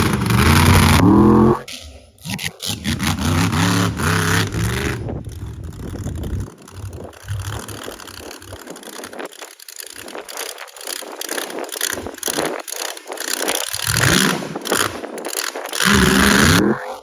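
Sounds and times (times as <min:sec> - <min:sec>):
truck engine revving: 0:00.0 - 0:08.3, 0:15.8 - 0:17.0.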